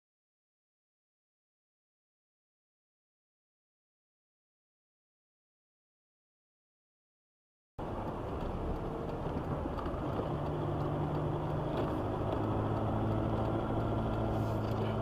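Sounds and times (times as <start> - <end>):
car engine hum: 7.8 - 15.0
road noise: 7.8 - 15.0.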